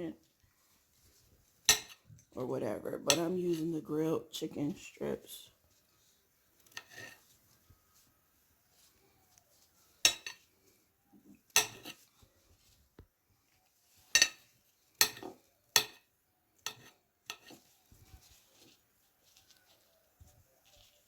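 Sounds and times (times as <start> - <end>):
knife clinking against a plate: 10.0 - 10.4, 11.5 - 12.0, 14.1 - 17.6.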